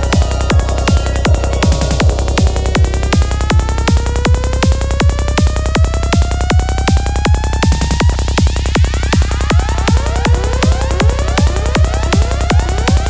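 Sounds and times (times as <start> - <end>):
synth tone gliding upward: 0.0 - 5.0
kick drum: 0.0 - 13.0
rolling bassline: 0.0 - 13.0.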